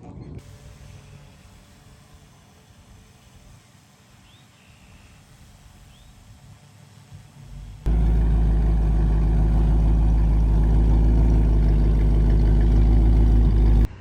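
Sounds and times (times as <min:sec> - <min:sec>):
truck engine idling: 0:07.4 - 0:14.0.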